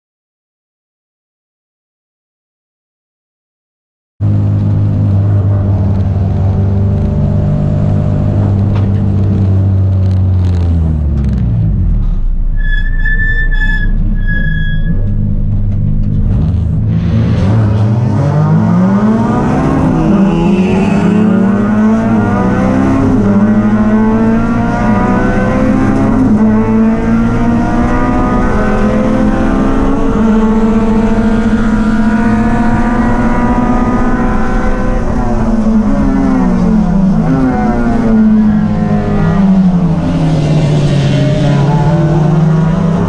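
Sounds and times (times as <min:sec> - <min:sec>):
race engine revving: 0:14.2 - 0:43.0.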